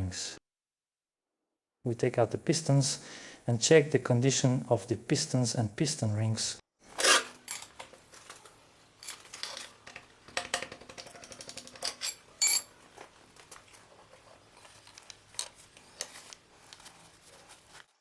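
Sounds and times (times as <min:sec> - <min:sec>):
metal tools clinking: 0:09.0 - 0:09.8, 0:11.4 - 0:12.8.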